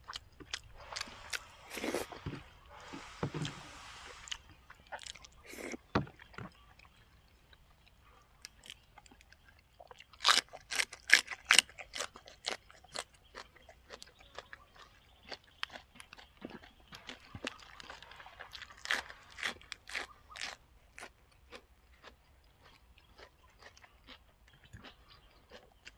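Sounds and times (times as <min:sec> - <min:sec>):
chewing with crisp crunches: 0:00.0 - 0:25.9.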